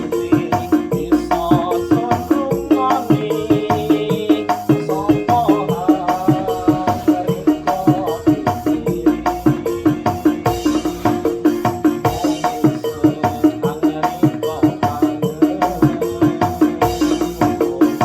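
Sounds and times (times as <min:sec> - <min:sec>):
drums and percussion: 0:00.0 - 0:18.0
keyboard melody: 0:00.0 - 0:18.0.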